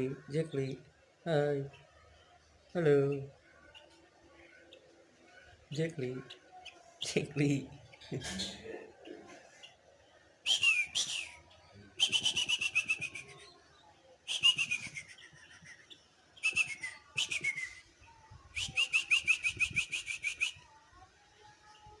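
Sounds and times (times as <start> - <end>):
songbird whistling: 10.4 - 13.6, 14.3 - 17.9, 18.5 - 20.7.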